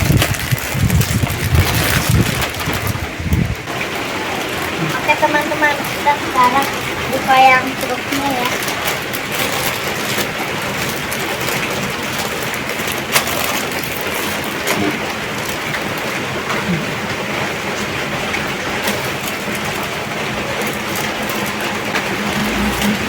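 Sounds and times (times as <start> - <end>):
packaging being opened: 0.0 - 3.1, 7.8 - 16.1, 18.8 - 22.8.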